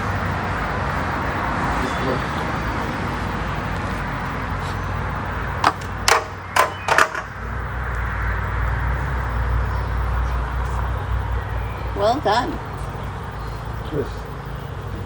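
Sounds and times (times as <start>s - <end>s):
steady outdoor hiss: 0.0s - 15.0s
sharp clacks: 5.6s - 7.4s.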